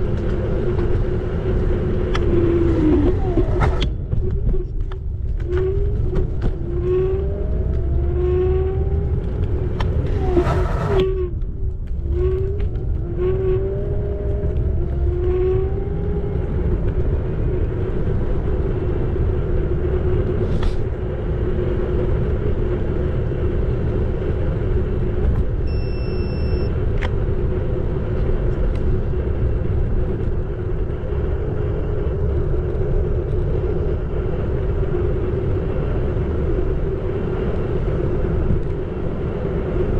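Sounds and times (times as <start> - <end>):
low riding rumble: 0.0 - 39.9
electric scooter motor whine: 25.6 - 26.8
brief high tone: 25.7 - 26.7.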